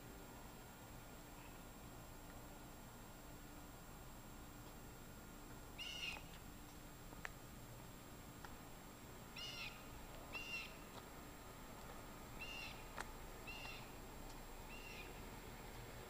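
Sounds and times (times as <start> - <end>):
outdoor hiss: 0.0 - 16.0
faint short bird calls: 5.8 - 6.4, 9.4 - 10.9, 12.4 - 14.0, 14.7 - 15.2.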